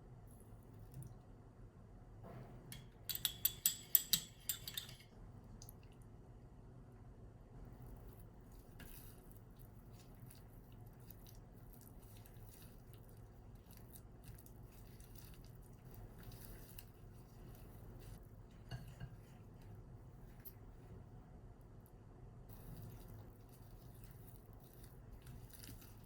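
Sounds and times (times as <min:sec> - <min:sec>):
low steady hum: 0:00.0 - 0:26.0
dough squishing: 0:07.7 - 0:21.2, 0:22.5 - 0:26.0.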